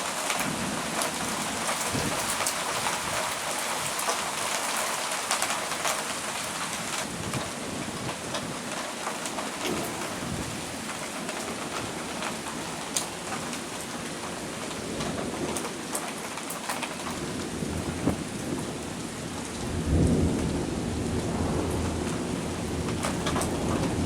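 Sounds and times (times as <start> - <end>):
heavy rain falling: 0.0 - 24.0
thunder rumble: 17.3 - 24.0.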